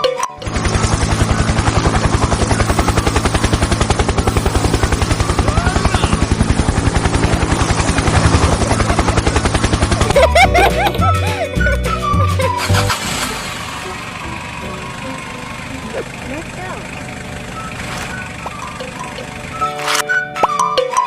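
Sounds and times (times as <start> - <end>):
helicopter rotor chopping: 0.3 - 20.0
steady low hum: 0.4 - 11.7.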